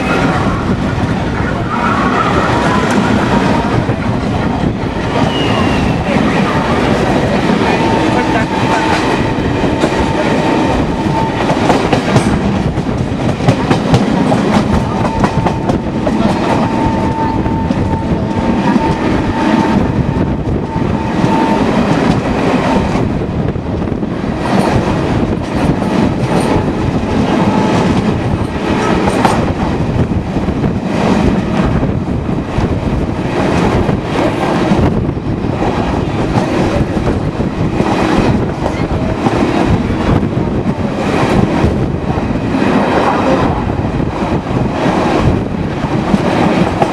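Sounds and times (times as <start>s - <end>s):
train rumble: 0.0s - 46.9s.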